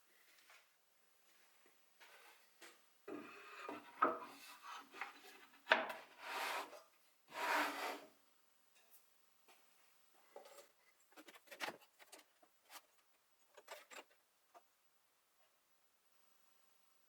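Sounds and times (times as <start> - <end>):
hand tool scraping wood: 6.1 - 8.1.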